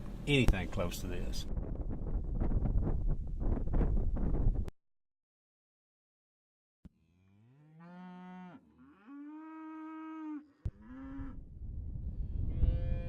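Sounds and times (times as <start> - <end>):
cattle mooing: 7.0 - 11.4, 12.5 - 13.0.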